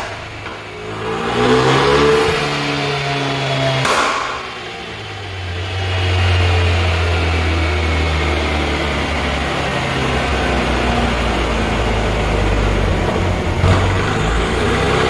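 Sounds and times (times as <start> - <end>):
exhaust crack: 0.0 - 5.1, 11.5 - 15.0
car engine idling: 5.0 - 15.0.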